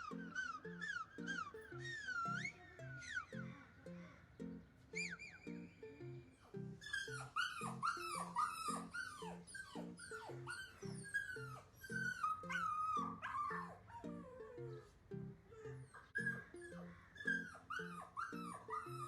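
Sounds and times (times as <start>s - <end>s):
dog whining and whimpering: 0.0s - 3.5s, 5.0s - 5.8s, 6.8s - 19.0s
music with plucked beat: 0.0s - 4.9s, 5.5s - 6.8s, 9.8s - 17.0s.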